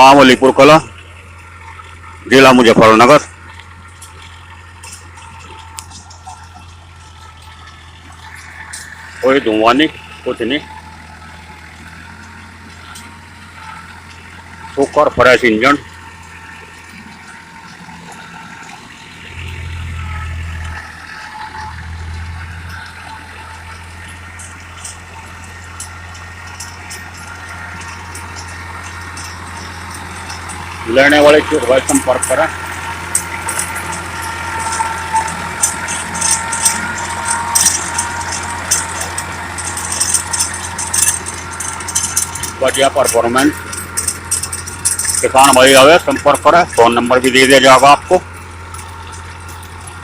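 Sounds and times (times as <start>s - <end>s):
tractor diesel engine running: 0.0s - 50.0s
irregular rattling clicks: 31.5s - 50.0s.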